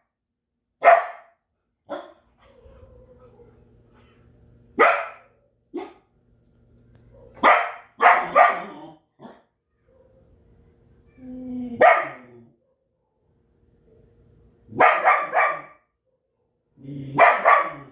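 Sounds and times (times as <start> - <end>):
dog barking: 0.8 - 3.6, 4.8 - 6.1, 7.1 - 10.3, 11.8 - 13.2, 14.7 - 16.6, 17.2 - 17.9.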